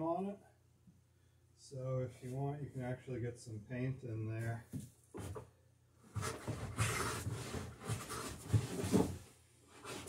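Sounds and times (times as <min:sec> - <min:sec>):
hand scraping wooden rail: 0:06.2 - 0:10.0.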